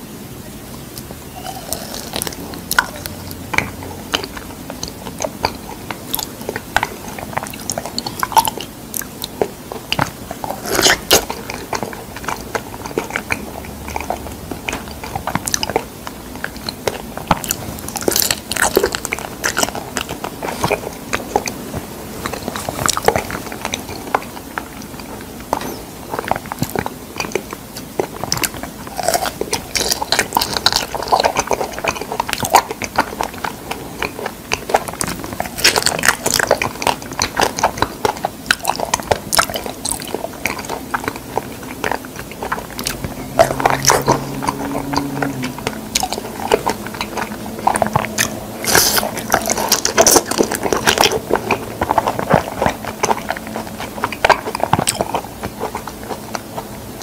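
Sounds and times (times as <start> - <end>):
biting and wet chewing: 0.8 - 57.0
mouth clicks: 0.9 - 57.0
low hum: 41.0 - 54.1.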